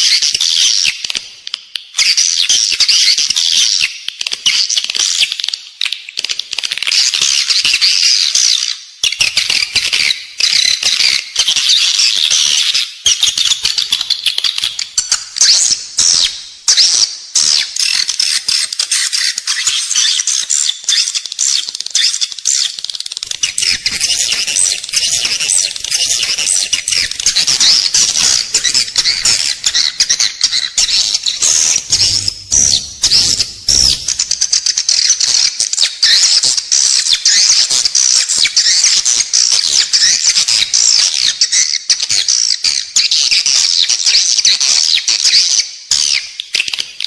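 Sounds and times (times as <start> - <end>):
swiftlets twittering and clicking: 17.8 - 36.3.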